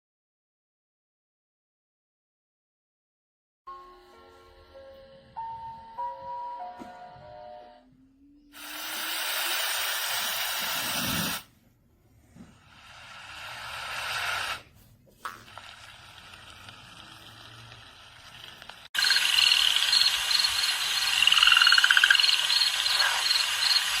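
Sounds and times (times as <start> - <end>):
rapid repeated chirping calls: 19.0 - 24.0.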